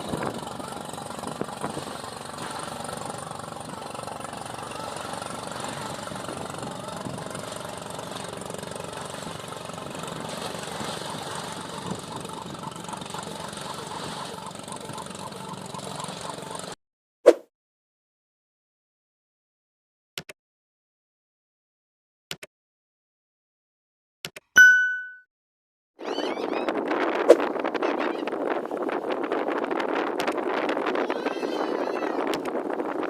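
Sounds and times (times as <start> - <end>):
wind and water rushing: 0.0 - 14.5, 26.7 - 33.0
boat engine running: 0.0 - 16.8, 26.1 - 33.0.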